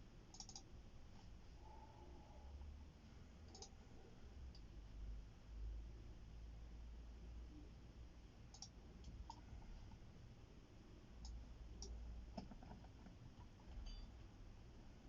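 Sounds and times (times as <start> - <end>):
low hum: 0.3 - 12.4.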